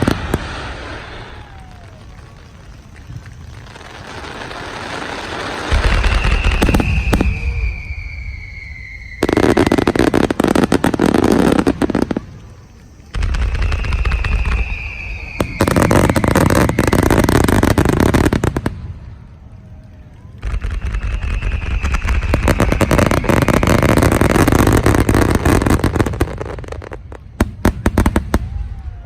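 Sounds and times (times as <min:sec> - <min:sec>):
falling firework whistle: 0:00.0 - 0:29.0
firework crackling: 0:00.0 - 0:29.0
firework launch thump: 0:05.7 - 0:09.3.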